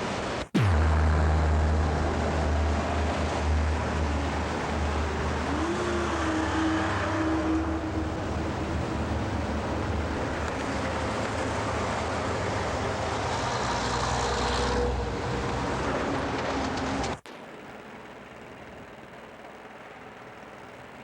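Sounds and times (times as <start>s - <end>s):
vehicle engine and road rumble: 0.0s - 21.0s.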